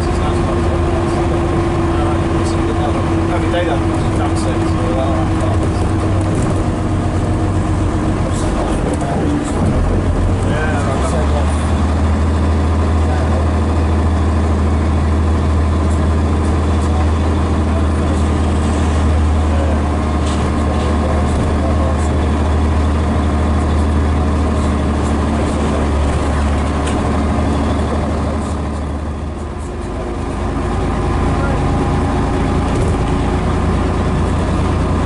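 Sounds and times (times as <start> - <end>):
bus diesel engine droning: 0.0 - 35.0.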